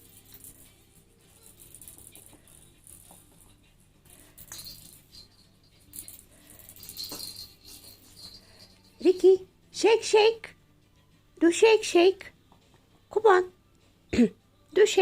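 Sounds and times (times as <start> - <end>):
toy ball rattling: 0.0 - 9.4.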